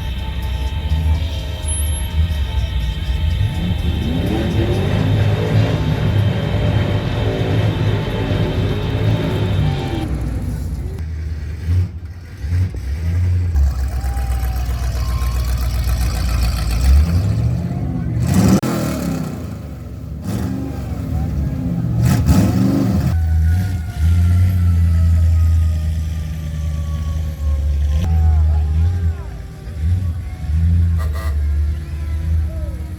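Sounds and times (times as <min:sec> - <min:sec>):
classic car engines rumbling: 0:00.0 - 0:32.9
engine revving: 0:00.9 - 0:32.9.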